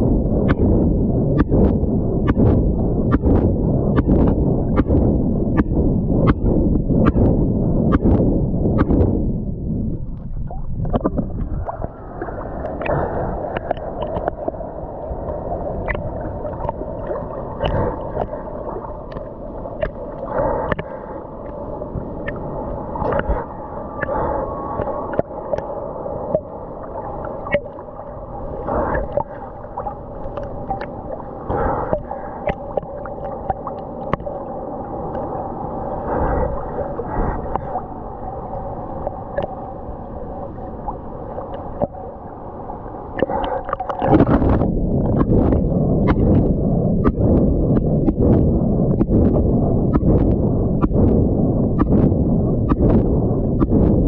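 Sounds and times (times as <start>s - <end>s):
faint steady hum: 0.0s - 54.0s
muffled water sloshing underwater: 0.0s - 54.0s.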